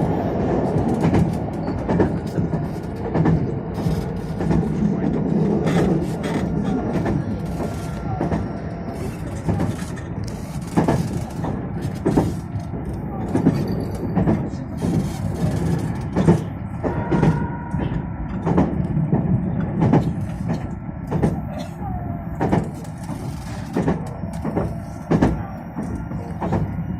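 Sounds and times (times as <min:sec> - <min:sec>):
wheels clacking over rail joints: 0:00.0 - 0:21.5
train wheels rumbling on rail: 0:00.0 - 0:26.9.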